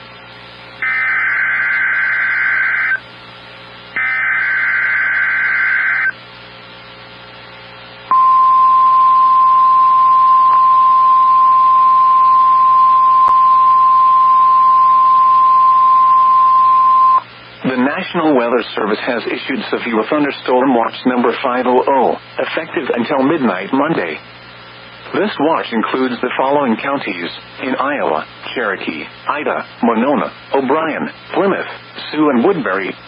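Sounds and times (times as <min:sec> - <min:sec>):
screechy digital data bursts: 0:00.8 - 0:03.0, 0:04.0 - 0:06.2.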